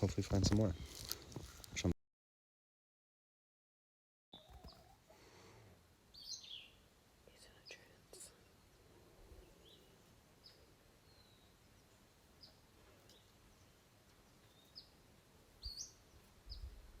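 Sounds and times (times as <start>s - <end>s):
faint bird chirps: 4.4s - 5.1s, 6.1s - 17.0s.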